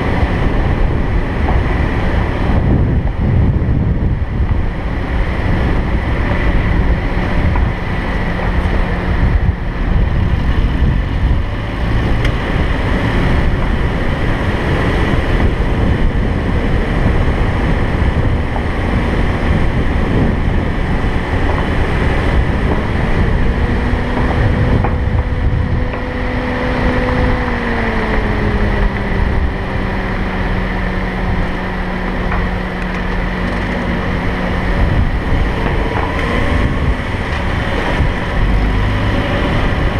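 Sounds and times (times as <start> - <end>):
humming engine tone: 0.0 - 39.9
wind and road noise: 0.0 - 39.9.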